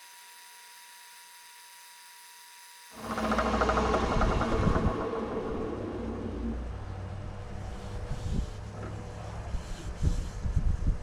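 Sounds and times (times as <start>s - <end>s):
low knocks: 3.0s - 7.3s
wood lathe humming: 3.0s - 7.6s.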